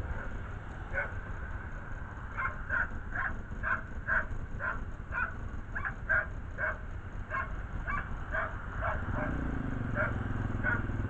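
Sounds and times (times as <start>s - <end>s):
dog barking: 0.9s - 1.2s, 2.3s - 10.9s.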